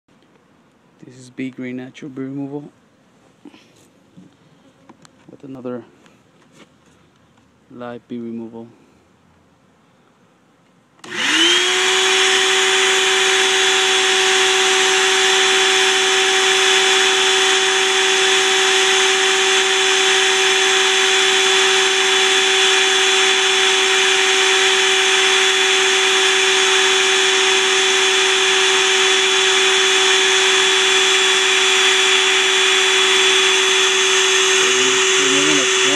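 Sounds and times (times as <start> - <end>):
electric motor spinning up: 11.0 - 35.9.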